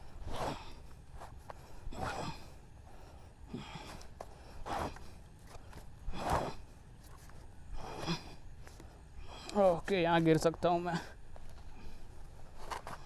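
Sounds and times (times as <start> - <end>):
person breathing hard: 0.0 - 6.9, 7.6 - 9.8.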